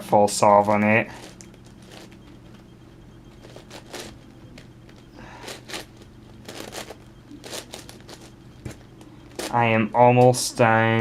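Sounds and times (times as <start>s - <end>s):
puzzle cube clicking and scraping: 5.4s - 8.4s.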